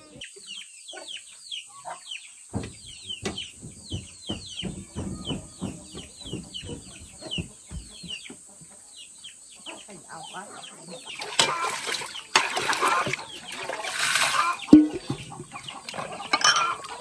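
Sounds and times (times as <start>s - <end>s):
chicks peeping and clucking: 0.0s - 17.0s
dull low knocks: 2.5s - 8.3s, 14.6s - 16.9s.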